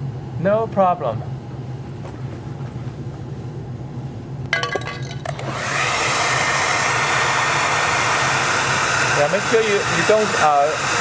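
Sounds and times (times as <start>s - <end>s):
hair dryer blowing: 5.3s - 11.0s.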